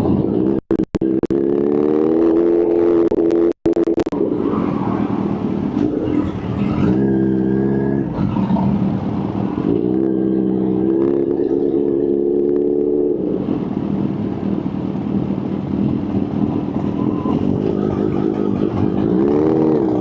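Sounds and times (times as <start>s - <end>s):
motorcycle engine revving: 0.1s - 4.3s, 17.2s - 20.0s.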